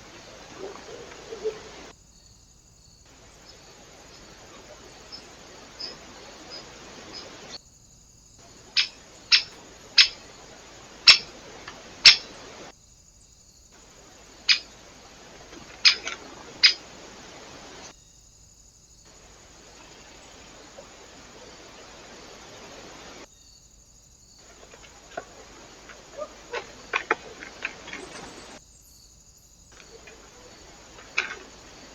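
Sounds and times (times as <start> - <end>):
small birds chipping: 0.0 - 7.6, 8.4 - 12.7, 13.8 - 18.2, 24.2 - 31.9
steady background hiss: 0.0 - 31.9.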